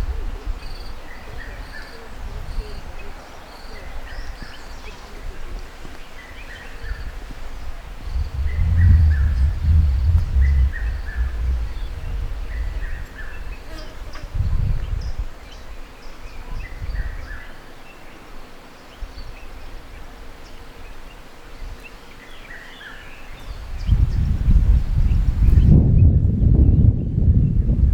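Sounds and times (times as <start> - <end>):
uneven low rumble: 7.8 - 15.3.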